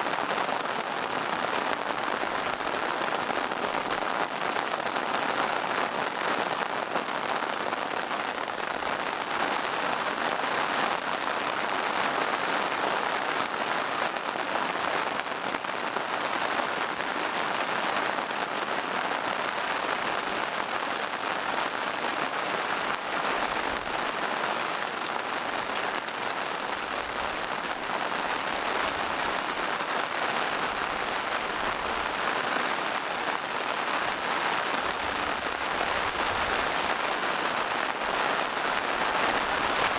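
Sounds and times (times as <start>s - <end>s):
rain on foliage: 0.0s - 39.9s.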